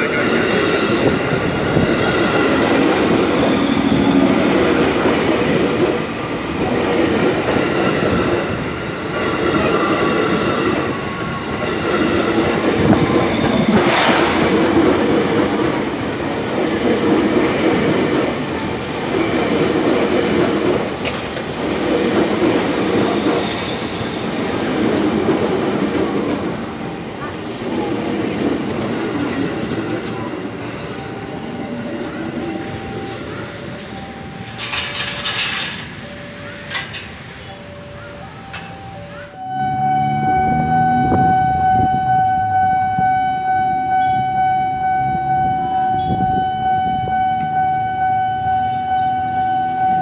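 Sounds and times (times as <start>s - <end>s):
train wheels clattering: 33.8s - 37.5s.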